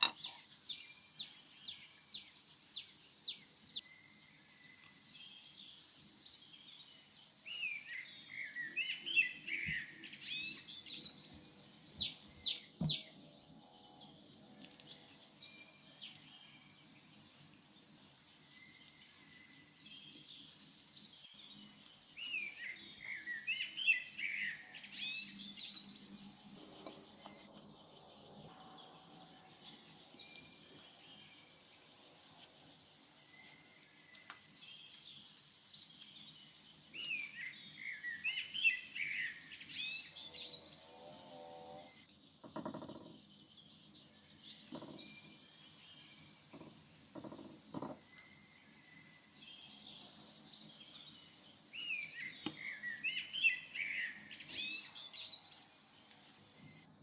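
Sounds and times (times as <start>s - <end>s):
small birds chirping and singing: 0.0s - 57.0s
knocks: 12.8s - 13.0s, 42.4s - 43.2s.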